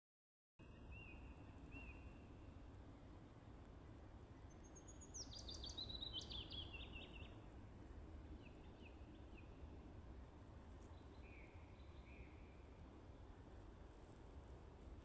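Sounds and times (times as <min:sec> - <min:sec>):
low steady background rumble: 0:00.6 - 0:15.0
songbird singing: 0:04.5 - 0:07.4.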